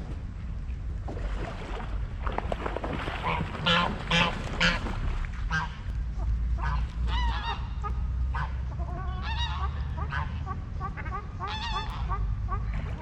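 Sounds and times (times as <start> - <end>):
steady low rumble: 0.0 - 13.0
waterfowl calling: 3.1 - 13.0.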